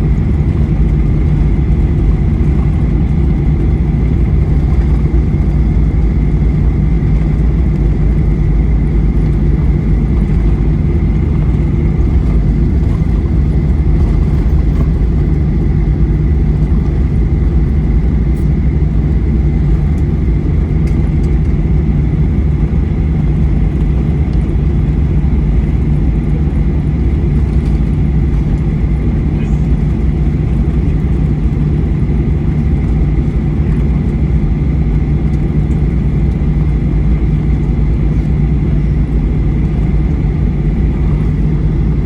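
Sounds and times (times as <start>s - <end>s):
airplane cabin rumble: 0.0s - 42.0s.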